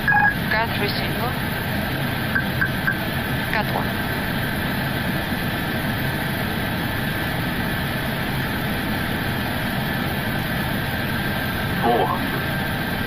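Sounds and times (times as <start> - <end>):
faint steady whine: 0.0 - 13.0.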